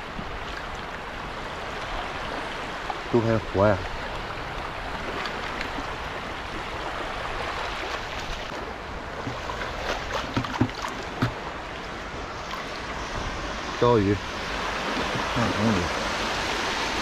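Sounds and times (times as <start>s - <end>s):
sea water washing over shore: 0.0s - 17.0s
soft knocks: 10.3s - 11.4s.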